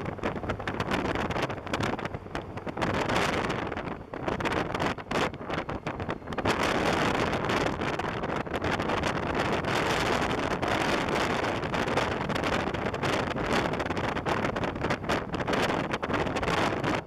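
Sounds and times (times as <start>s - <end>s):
wind rushing on microphone: 0.0s - 17.0s.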